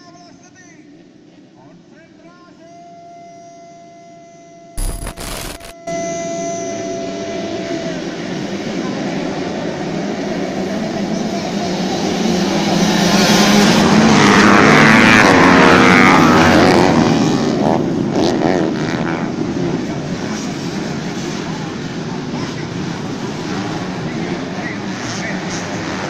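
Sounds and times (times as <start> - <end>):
dirt bike engines racing past: 10.4 - 26.0.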